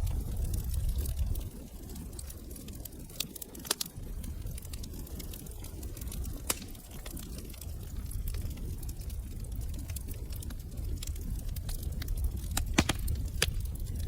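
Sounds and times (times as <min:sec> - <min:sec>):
low rumble: 0:00.0 - 0:02.8
wood fire crackling: 0:00.0 - 0:14.0.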